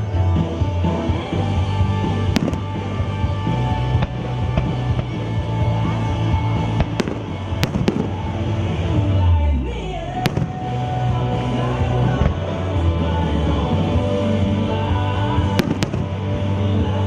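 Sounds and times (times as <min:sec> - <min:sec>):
music playing: 0:00.0 - 0:17.0
fireworks bangs: 0:02.3 - 0:03.0, 0:06.8 - 0:08.5, 0:10.2 - 0:10.9, 0:15.5 - 0:16.4.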